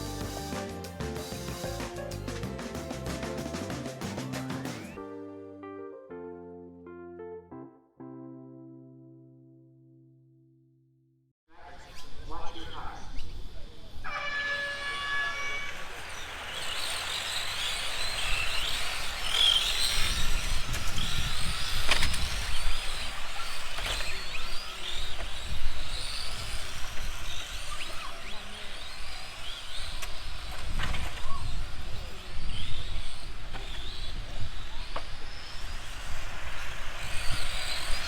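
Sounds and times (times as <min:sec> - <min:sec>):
electric motors whining: 0:13.2 - 0:38.0.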